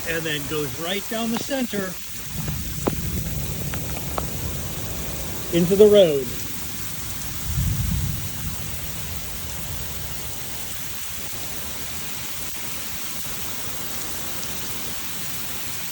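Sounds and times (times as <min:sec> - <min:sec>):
steady downpour of rain: 0:00.0 - 0:15.9
low rumble: 0:02.2 - 0:10.7.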